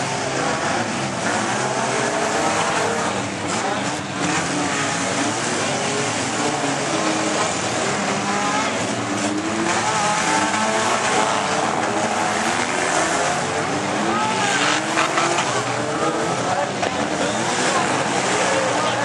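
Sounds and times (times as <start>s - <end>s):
car engines revving: 0.0s - 19.0s
tires spinning: 0.0s - 19.0s.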